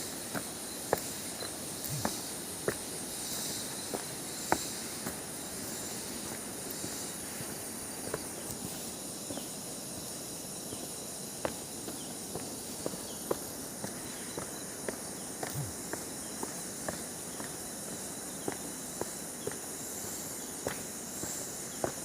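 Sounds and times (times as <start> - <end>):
footsteps on forest trail: 0.0 - 22.0
insects droning: 0.0 - 22.0.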